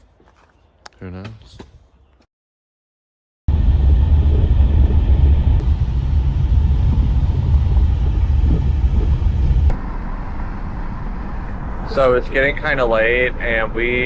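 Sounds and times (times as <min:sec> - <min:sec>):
car driving rumble: 0:03.5 - 0:14.0.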